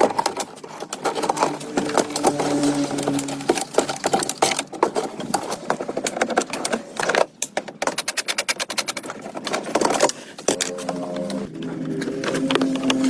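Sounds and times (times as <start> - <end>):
rapid mechanical clicking: 0.0 - 13.0.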